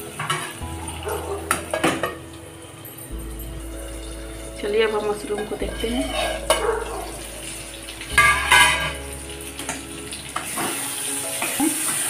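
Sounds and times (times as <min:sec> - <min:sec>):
metal spatula scraping pan: 0:05.7 - 0:07.1
food sizzling in a pan: 0:07.2 - 0:12.0.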